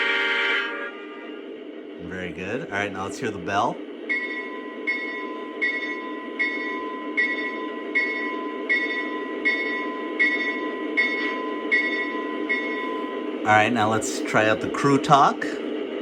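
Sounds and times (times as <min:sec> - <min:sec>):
locomotive bell ringing: 0:04.1 - 0:13.6.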